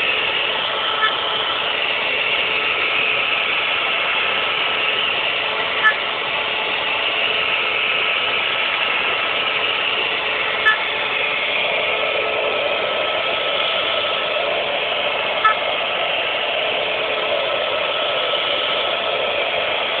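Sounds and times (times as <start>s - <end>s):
cnc machine running: 0.0s - 20.0s.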